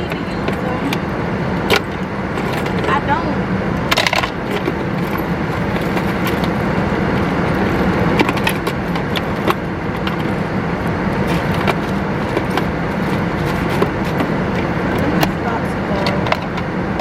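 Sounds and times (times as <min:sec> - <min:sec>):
machine humming: 0:00.0 - 0:17.0
clicks and rattles of objects: 0:01.7 - 0:03.0, 0:03.9 - 0:17.0.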